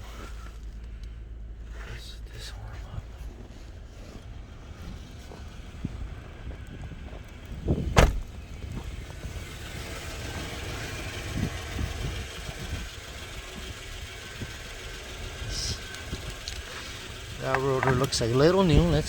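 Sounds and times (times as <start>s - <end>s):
car engine idling: 0.0s - 19.0s
loud sharp thump: 7.8s - 8.3s.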